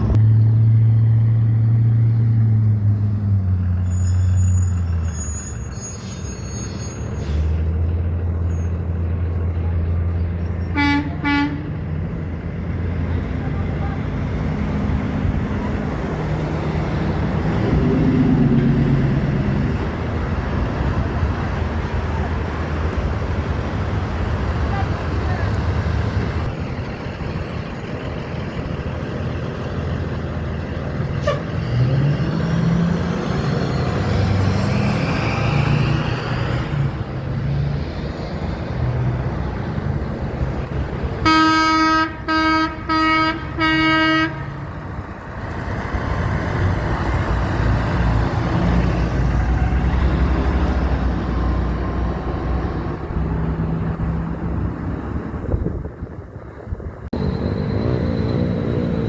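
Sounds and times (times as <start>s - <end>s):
trucks driving past: 0.0s - 59.0s
truck horn blasts: 10.7s - 11.8s, 31.2s - 31.7s, 41.2s - 44.8s.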